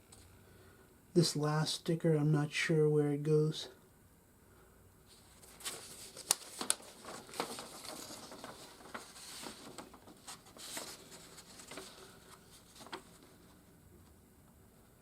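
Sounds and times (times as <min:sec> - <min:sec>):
soft rustling: 0:05.0 - 0:15.0.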